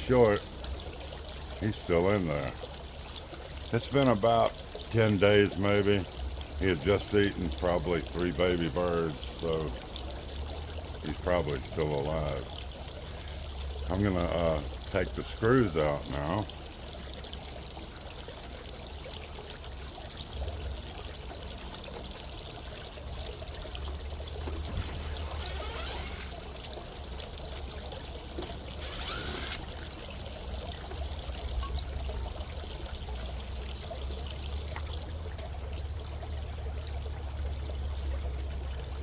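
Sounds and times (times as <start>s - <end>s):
trickling hiss: 0.0s - 17.0s, 22.5s - 30.6s.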